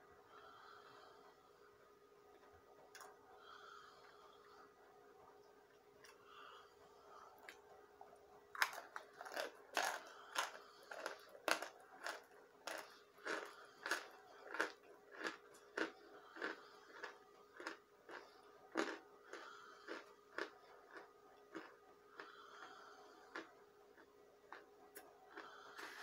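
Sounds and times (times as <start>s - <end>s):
person chewing with crisp crunches: 2.4s - 4.2s, 5.4s - 6.6s, 7.4s - 26.0s.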